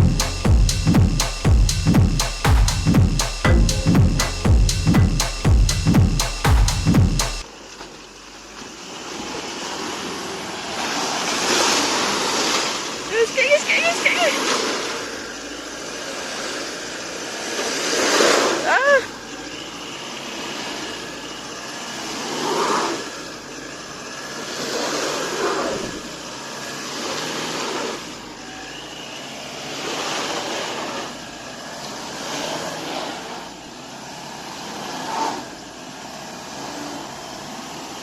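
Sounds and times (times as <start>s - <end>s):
vehicle engine surging: 0.0s - 7.4s.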